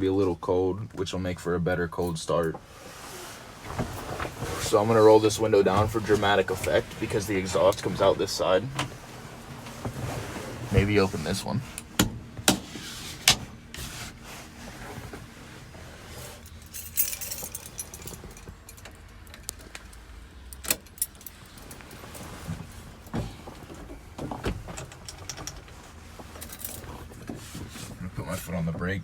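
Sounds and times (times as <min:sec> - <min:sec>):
keys jingling: 0:16.3 - 0:22.3
handling clicks and knocks: 0:16.4 - 0:20.0, 0:20.6 - 0:25.8.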